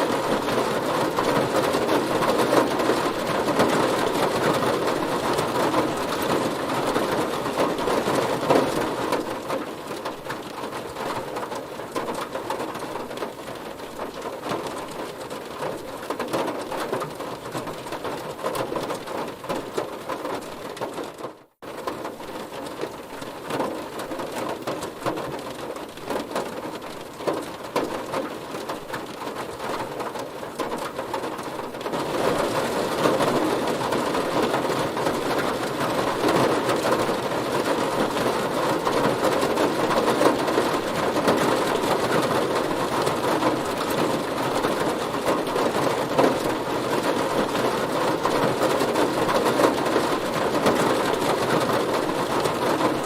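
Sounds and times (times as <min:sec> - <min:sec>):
heavy rain on a car: 0:00.0 - 0:53.0.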